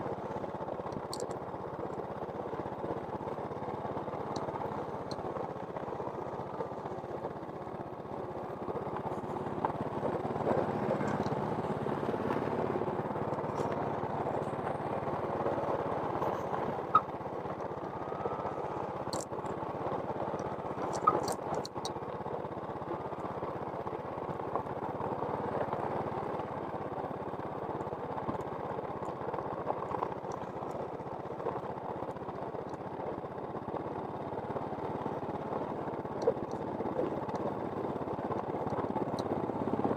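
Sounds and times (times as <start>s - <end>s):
engine running: 0.0s - 39.9s
sharp clicks: 20.8s - 21.9s.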